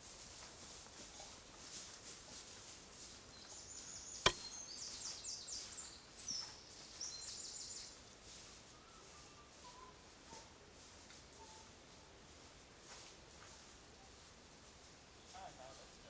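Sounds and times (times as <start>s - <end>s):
songbird singing: 3.3s - 10.1s.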